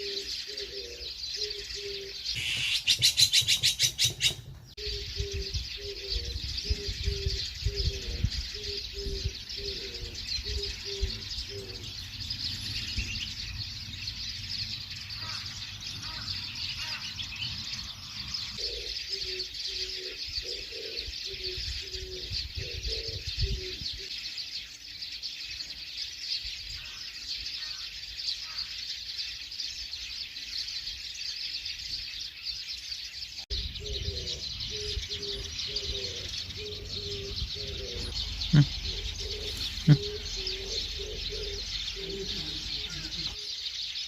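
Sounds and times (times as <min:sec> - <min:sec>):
dove cooing: 0:00.0 - 0:13.2, 0:18.4 - 0:24.1, 0:33.7 - 0:43.4
small birds chirping: 0:00.0 - 0:44.0.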